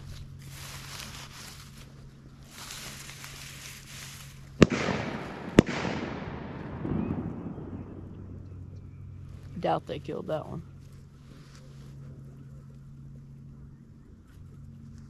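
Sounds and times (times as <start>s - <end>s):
long echo of gunshot: 4.6s - 8.6s
shotgun shots: 4.6s - 8.6s.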